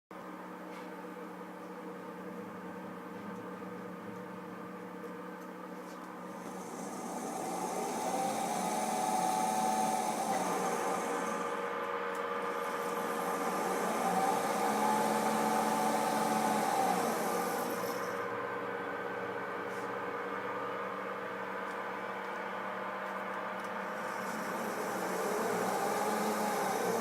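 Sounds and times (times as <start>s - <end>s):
servo motor electrical whine: 6.2s - 27.0s.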